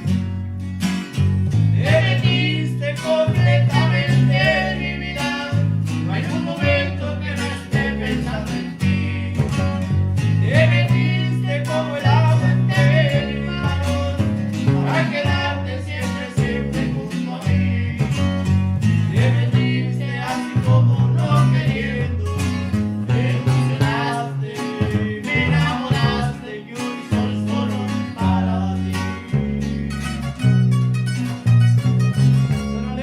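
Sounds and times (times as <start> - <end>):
bass line: 0.0 - 33.0
plucked guitar: 0.0 - 33.0
person singing: 1.8 - 9.5, 10.4 - 14.2, 23.1 - 30.2.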